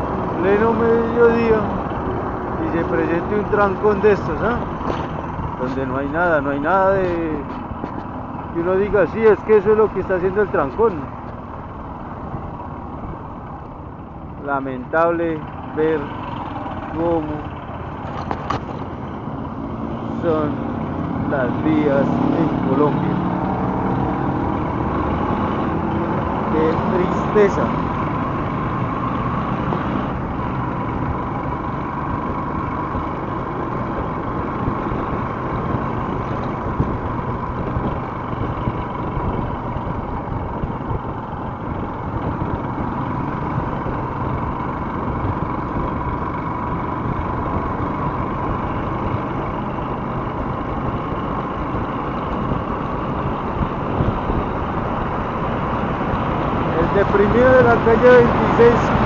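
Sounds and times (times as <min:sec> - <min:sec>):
motorcycle engine running: 0:00.0 - 0:59.0
traffic hum: 0:00.0 - 0:59.0.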